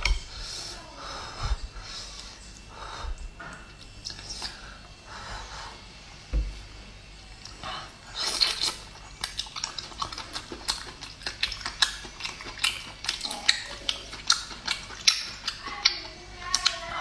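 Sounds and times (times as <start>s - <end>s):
moist chewing clicks: 8.3s - 16.9s.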